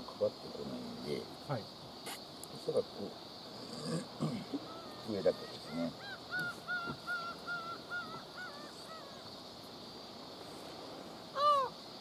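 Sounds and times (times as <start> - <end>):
bird calling: 3.5 - 9.7, 11.3 - 11.8.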